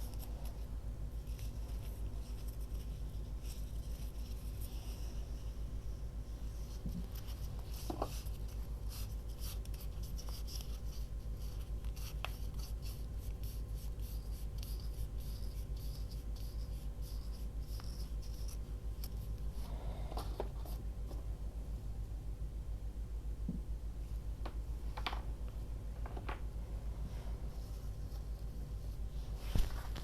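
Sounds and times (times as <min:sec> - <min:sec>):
paper scratching and rustling: 0:00.0 - 0:05.2, 0:06.6 - 0:19.4
steady low hum: 0:00.0 - 0:30.0.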